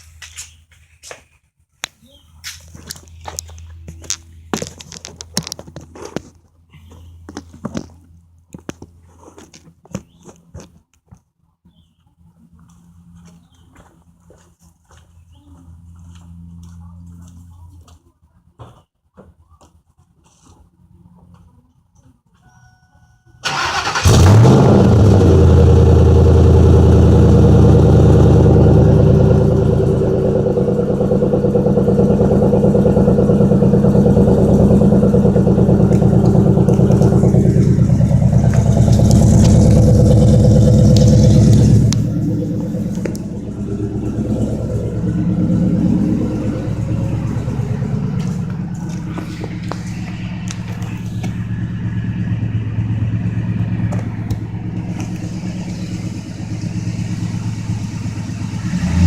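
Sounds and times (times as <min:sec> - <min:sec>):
engine idling loudly: 0:23.5 - 0:59.0.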